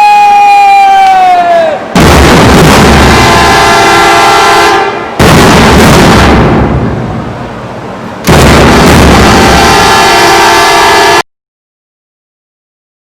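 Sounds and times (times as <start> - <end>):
heavy booming hits: 1.9 - 3.8, 5.0 - 7.4, 8.2 - 10.0
horn-like chord: 9.3 - 11.2.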